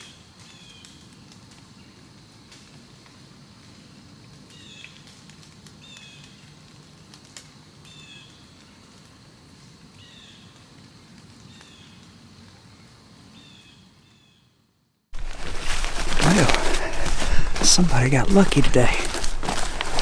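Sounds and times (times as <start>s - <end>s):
steady low rumble: 15.2s - 20.0s.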